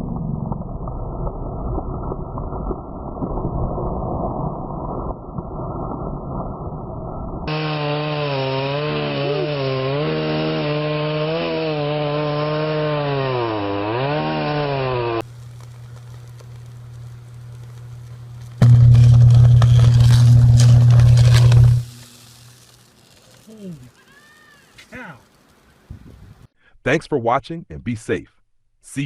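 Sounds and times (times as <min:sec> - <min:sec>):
chainsaw engine running: 0:07.5 - 0:24.0
steady low hum: 0:15.2 - 0:23.1.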